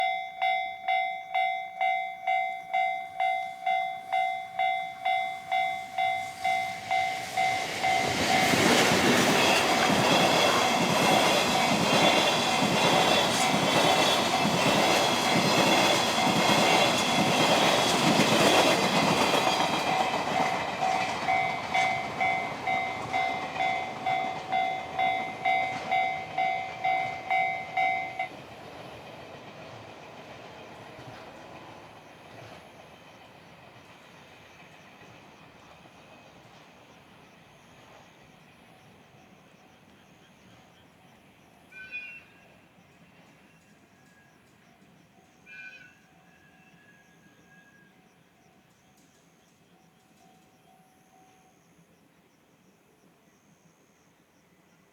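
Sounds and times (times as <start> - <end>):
level crossing alarm ringing: 0.0 - 28.4
train wheels clacking on rails: 0.0 - 38.2.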